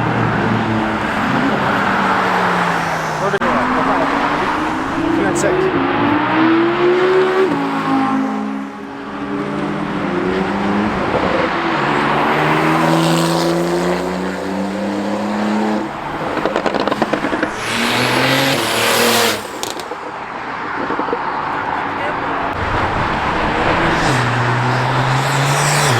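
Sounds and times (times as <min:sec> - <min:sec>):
car engines revving: 0:00.0 - 0:25.9
engine crackle: 0:15.9 - 0:20.1.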